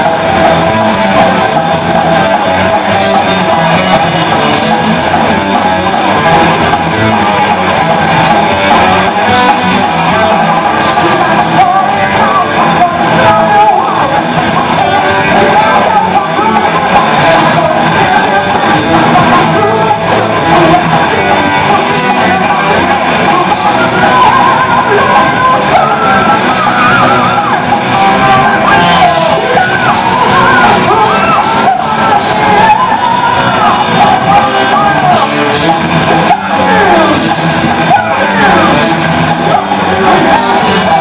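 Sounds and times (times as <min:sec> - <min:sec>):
high yelled vocals: 0:00.0 - 0:41.0
metal band playing: 0:00.0 - 0:41.0.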